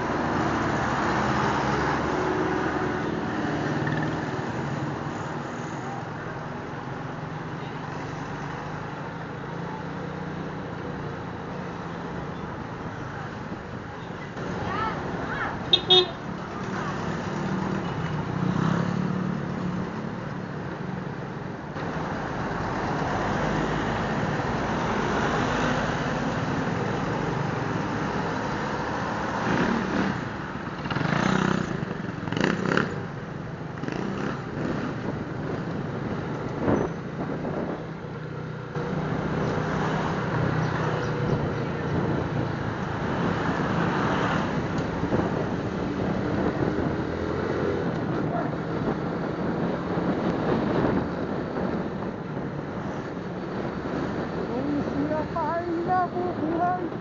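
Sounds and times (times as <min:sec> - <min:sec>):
road noise: 0:00.0 - 0:57.0
wind noise: 0:33.8 - 0:57.0.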